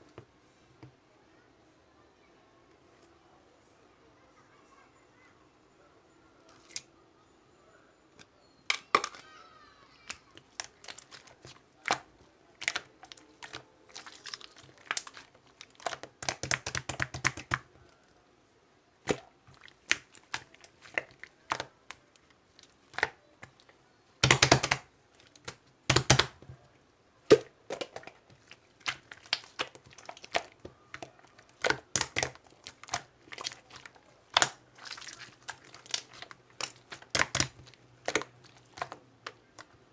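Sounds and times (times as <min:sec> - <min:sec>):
slime clicking and popping: 0:10.4 - 0:17.7, 0:19.1 - 0:22.0, 0:22.9 - 0:23.6, 0:24.2 - 0:26.5, 0:27.3 - 0:39.7.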